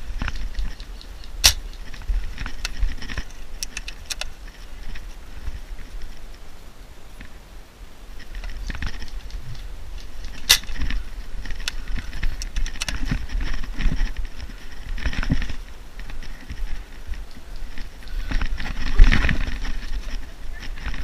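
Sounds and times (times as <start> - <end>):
low rumble of wind: 0.0 - 21.0
sharp clicks or snaps: 0.2 - 2.8
microphone handling noise: 8.2 - 21.0
rustling and footfalls: 8.2 - 21.0.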